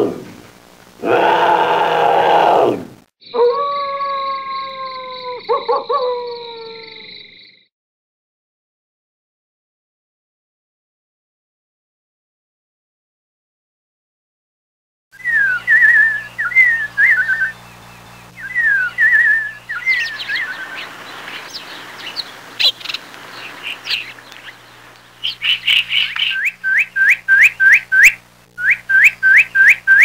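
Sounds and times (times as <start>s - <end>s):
bird chirps: 15.2s - 30.0s
birdsong whistles and trills: 15.2s - 30.0s.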